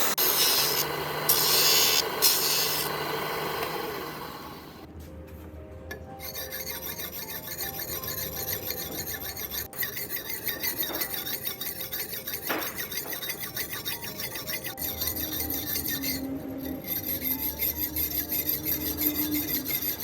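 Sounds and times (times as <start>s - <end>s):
metal being filed by hand: 0.0s - 2.9s, 6.2s - 20.0s.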